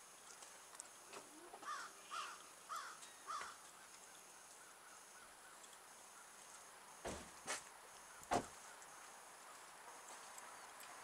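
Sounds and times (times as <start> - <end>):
bird calling: 1.1 - 6.4.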